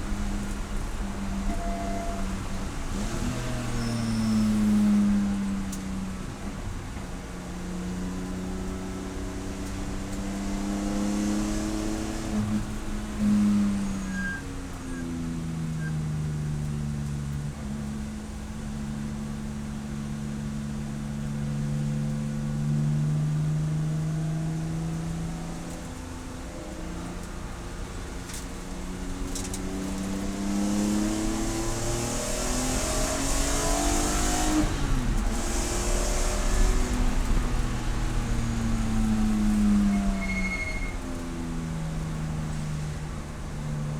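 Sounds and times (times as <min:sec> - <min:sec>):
race car engine revving: 0:22.8 - 0:43.6.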